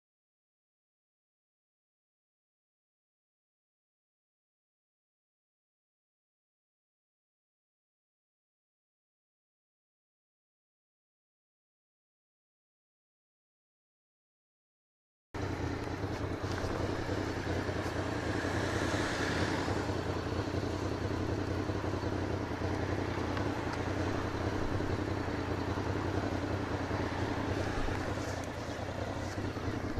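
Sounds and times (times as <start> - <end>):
motorcycle engine hum: 15.4 - 29.9
road and wind noise: 15.4 - 29.9.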